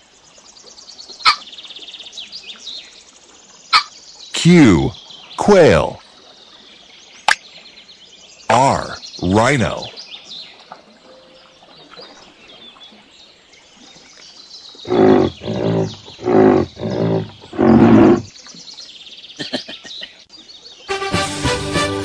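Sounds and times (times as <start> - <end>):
rhinoceros grunting: 14.9 - 18.3.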